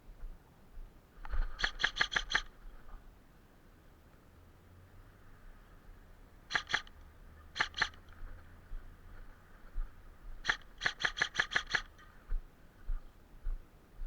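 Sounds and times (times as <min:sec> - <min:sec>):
airsoft gun shots: 0:01.6 - 0:02.5, 0:06.5 - 0:06.9, 0:07.6 - 0:08.0, 0:10.4 - 0:11.9.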